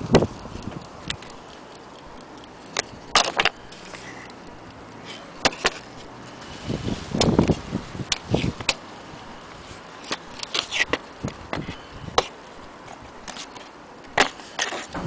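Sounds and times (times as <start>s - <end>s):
sharp clicks and knocks: 0.1s - 4.8s.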